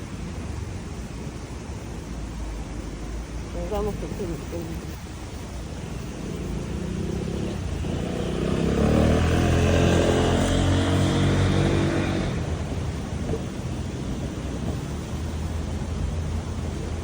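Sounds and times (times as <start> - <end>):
street background noise: 0.0 - 17.0
vehicle driving past: 5.9 - 16.5.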